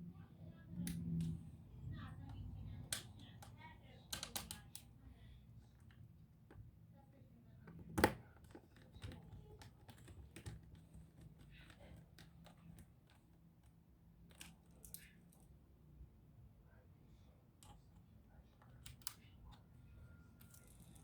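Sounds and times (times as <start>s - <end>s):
faint low hum: 0.0s - 21.0s
plastic parts clicking and tapping: 2.2s - 4.9s, 7.6s - 15.2s, 18.5s - 19.6s.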